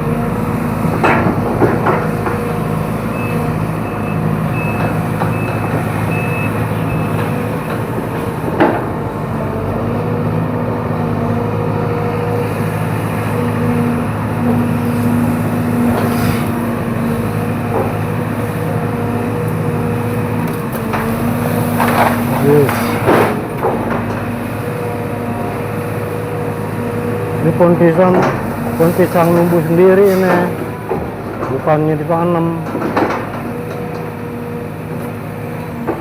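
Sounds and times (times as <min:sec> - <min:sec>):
excavator diesel engine running: 0:00.0 - 0:36.0
travel alarm beeping: 0:03.1 - 0:07.3.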